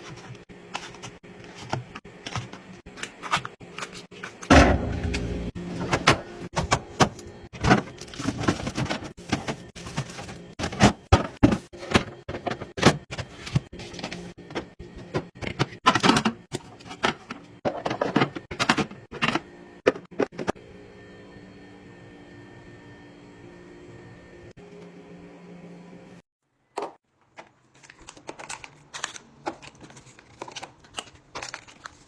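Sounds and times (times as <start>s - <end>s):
food packaging clicks and rustles: 0.0s - 4.5s, 6.5s - 20.5s, 26.8s - 32.0s.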